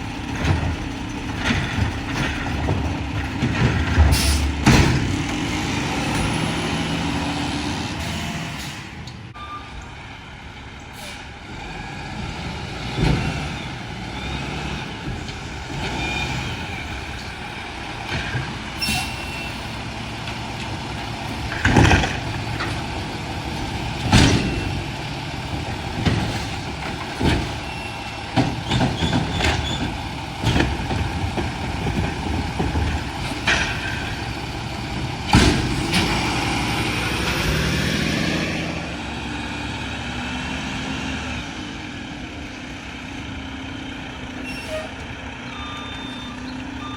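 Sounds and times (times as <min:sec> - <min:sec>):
loud bangs and clatters: 0:00.0 - 0:07.1, 0:19.8 - 0:38.4
diesel engine running: 0:00.0 - 0:46.9.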